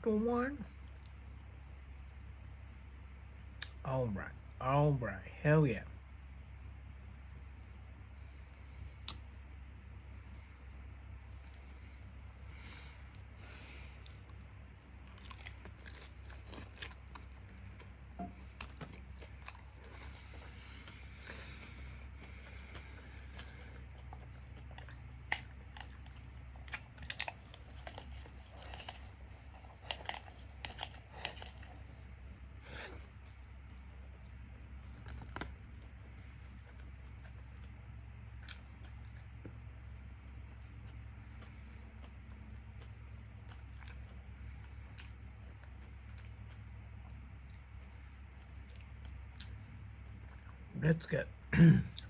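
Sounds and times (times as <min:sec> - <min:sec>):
chewing fried chicken: 0:00.6 - 0:02.6, 0:06.8 - 0:51.2.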